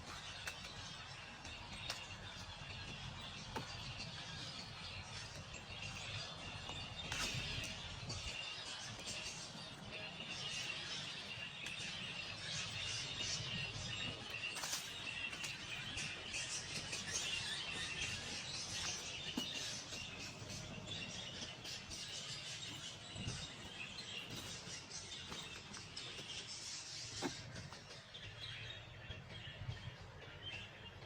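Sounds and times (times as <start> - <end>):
small birds chirping chorus: 0.0 - 31.0.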